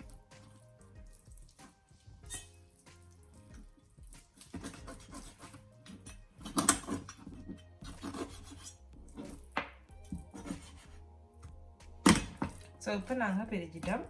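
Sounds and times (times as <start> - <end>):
raw chicken being rubbed and skinned: 0.0 - 9.6, 10.2 - 11.2.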